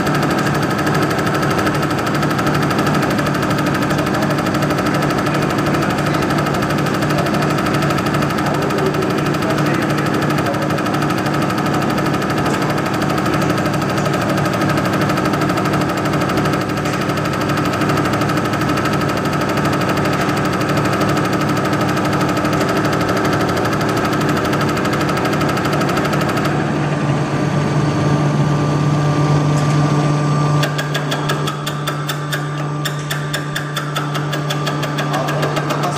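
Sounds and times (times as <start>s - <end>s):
fast injector rattle: 0.0s - 26.7s
test bench drive humming: 0.0s - 35.9s
fast ticking: 30.6s - 35.9s.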